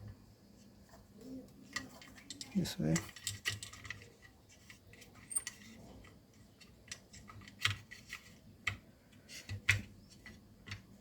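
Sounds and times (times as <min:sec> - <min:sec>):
plastic parts clicking and tapping: 0:01.0 - 0:11.0.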